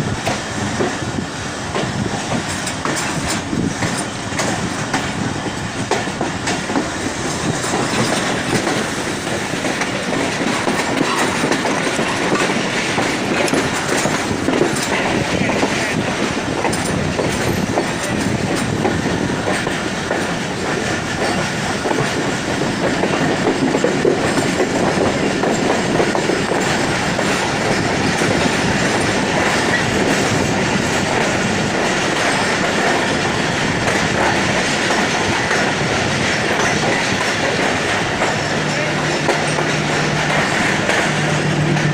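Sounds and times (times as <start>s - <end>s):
passenger train rumbling past: 0.0s - 41.9s
wheels clattering over rail joints: 1.7s - 41.9s.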